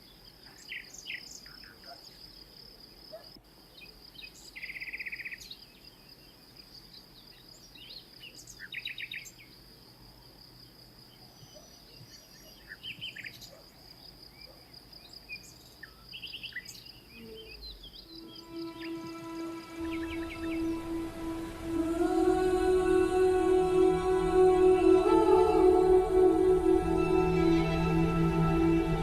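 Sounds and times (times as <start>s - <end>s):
birds chirping and trilling: 0.0s - 9.7s, 11.1s - 24.2s
high-pitched steady hum: 18.0s - 29.0s.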